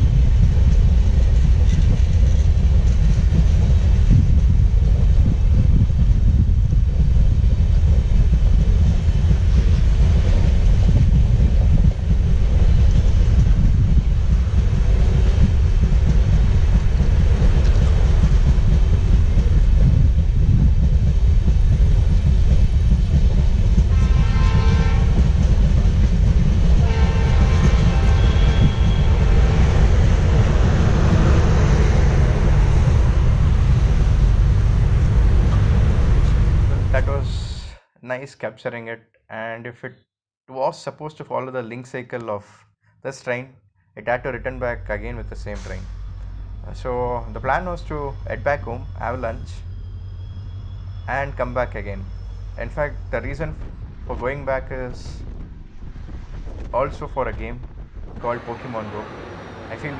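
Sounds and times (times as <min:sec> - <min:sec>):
diesel locomotive rumbling past: 0:00.0 - 0:37.7, 0:44.1 - 0:59.9
train horn blasts: 0:23.9 - 0:25.3, 0:26.8 - 0:29.4.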